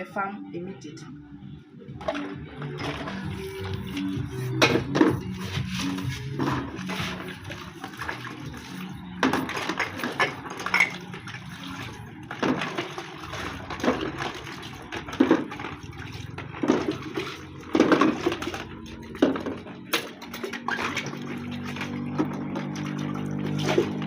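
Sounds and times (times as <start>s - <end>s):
water splashing and pouring: 2.0s - 24.0s
pots knocking together: 9.1s - 11.5s, 12.3s - 24.0s.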